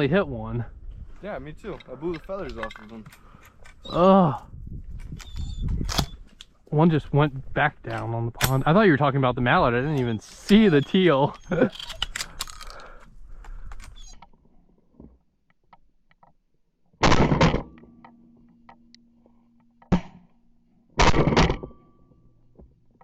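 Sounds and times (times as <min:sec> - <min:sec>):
shotgun shots: 0:17.0 - 0:17.8, 0:21.0 - 0:21.8.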